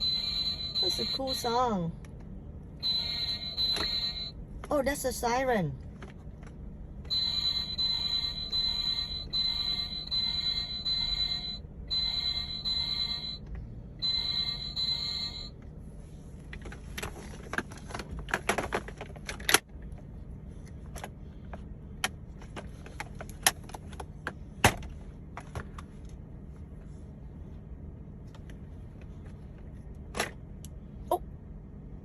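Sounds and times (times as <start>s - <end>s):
toy electronic siren: 0.0s - 1.6s, 2.8s - 4.3s, 7.1s - 13.4s, 14.0s - 15.6s.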